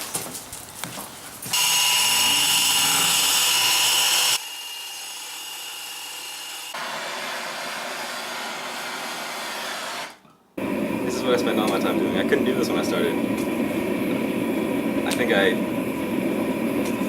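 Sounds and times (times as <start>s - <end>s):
power tool whining: 1.5s - 10.2s.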